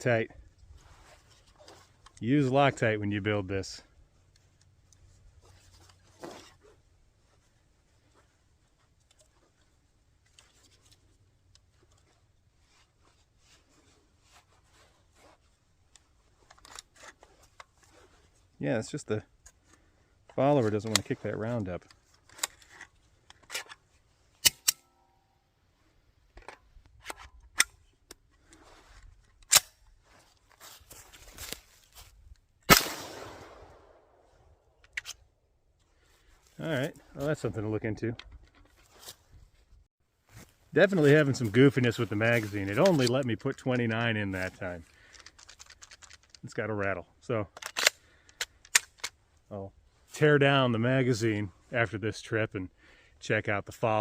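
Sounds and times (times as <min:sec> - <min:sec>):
handling clicks and rustles: 0:00.0 - 0:50.3
gunshot with echo: 0:32.7 - 0:33.9.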